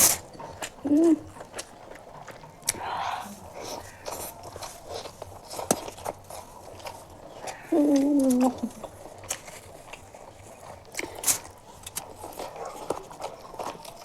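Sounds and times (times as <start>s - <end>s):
chewing and wet mouth clicks: 0.0s - 14.0s
person humming mmm: 0.8s - 1.4s, 7.4s - 8.9s.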